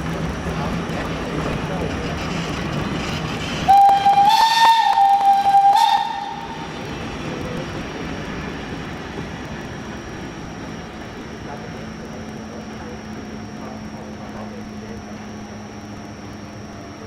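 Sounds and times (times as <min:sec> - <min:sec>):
low rumble of rail traffic: 0:00.0 - 0:17.0
locomotive whistle blowing: 0:03.7 - 0:06.7.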